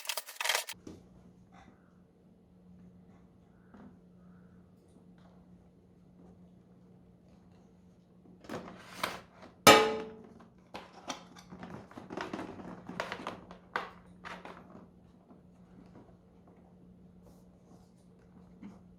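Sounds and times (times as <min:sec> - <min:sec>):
plastic parts knocking and rustling: 0:00.0 - 0:00.8, 0:08.5 - 0:14.8.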